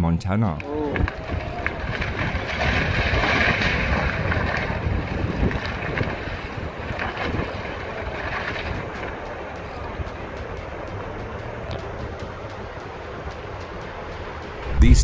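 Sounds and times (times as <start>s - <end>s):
wind buffeting microphone: 0.8s - 10.8s, 14.5s - 15.0s.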